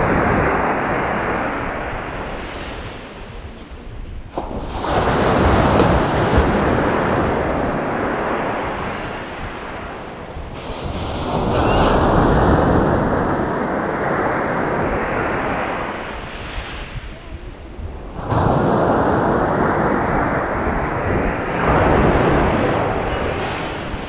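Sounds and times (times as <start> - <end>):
sea waves breaking on beach: 0.0 - 24.0.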